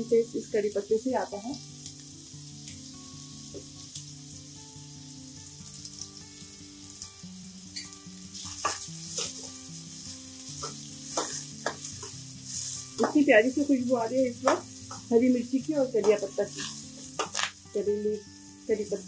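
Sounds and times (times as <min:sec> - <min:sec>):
vegetables sizzling in hot oil: 0:00.0 - 0:19.0
spatula scraping a pan: 0:07.8 - 0:09.6, 0:10.5 - 0:13.2, 0:16.0 - 0:17.5.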